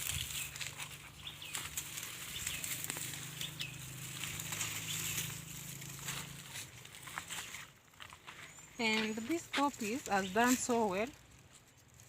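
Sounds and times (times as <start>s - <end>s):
dry plants rustling and crackling: 0.0s - 12.0s
bird chirps: 0.1s - 5.5s.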